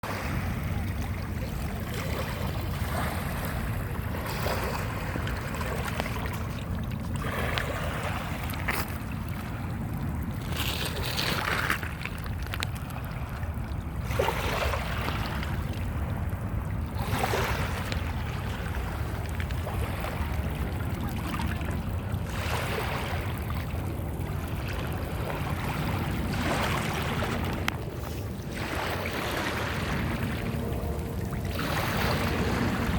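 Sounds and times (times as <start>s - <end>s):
wind rumble on microphone: 0.0s - 32.9s
small waves breaking on beach: 24.5s - 30.9s.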